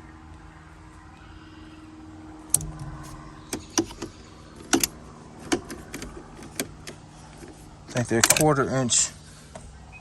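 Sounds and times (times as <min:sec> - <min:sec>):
low steady hum: 0:01.0 - 0:10.0
plastic and metal clicks: 0:02.5 - 0:08.5.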